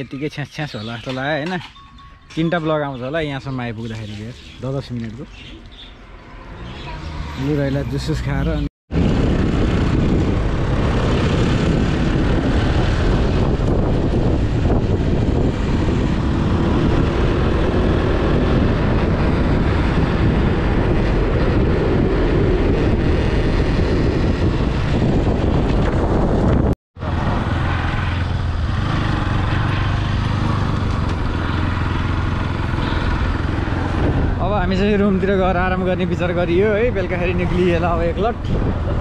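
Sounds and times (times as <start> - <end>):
wind noise on microphone: 8.9 - 39.0
motorcycle engine running: 27.0 - 34.4.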